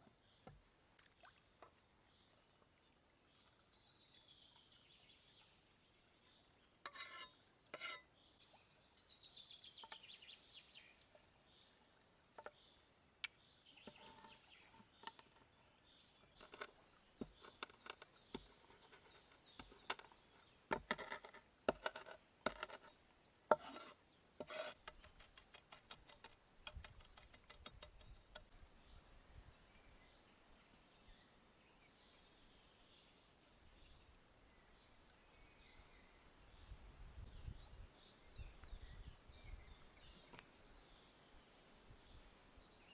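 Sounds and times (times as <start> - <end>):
cookware and utensils clinking: 6.9 - 8.1.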